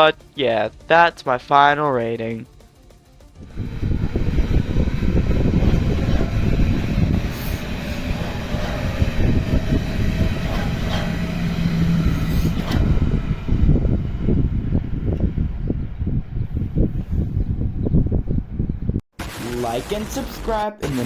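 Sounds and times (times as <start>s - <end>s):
train wheels rumbling on track: 3.4s - 18.6s.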